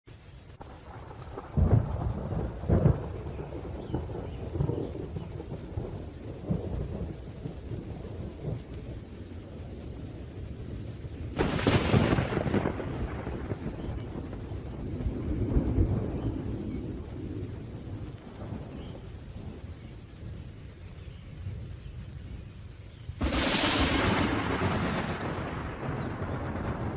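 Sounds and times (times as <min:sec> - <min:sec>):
rain falling: 0:00.1 - 0:26.9
sharp thunderclap: 0:00.6 - 0:07.6, 0:11.3 - 0:18.9, 0:23.2 - 0:26.9
low rolling thunder: 0:00.6 - 0:26.9.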